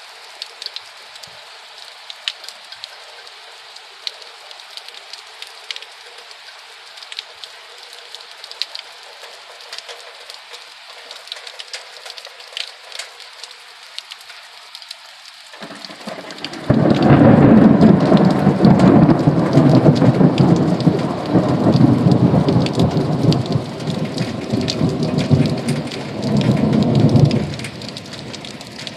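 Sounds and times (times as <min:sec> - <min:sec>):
rain drops tapping: 0:00.0 - 0:28.9
thunder rumble: 0:15.6 - 0:28.9.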